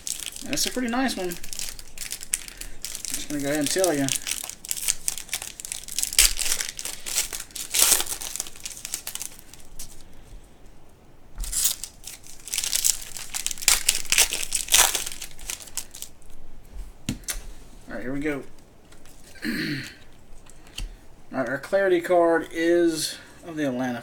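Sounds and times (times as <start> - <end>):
card pack crinkling and rustling: 0.0 - 10.3, 11.4 - 16.4, 18.0 - 19.4.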